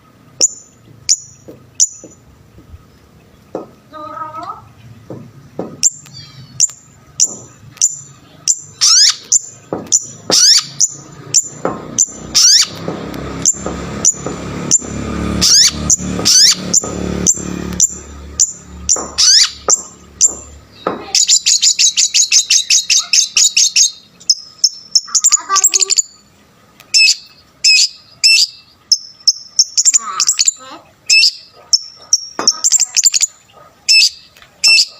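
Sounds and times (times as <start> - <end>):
rapid high bird trill: 0.0 - 2.3, 5.8 - 26.3, 26.9 - 34.9
low rumbling noise: 0.0 - 22.9
bird singing sharp high calls: 0.3 - 5.1, 5.8 - 34.9.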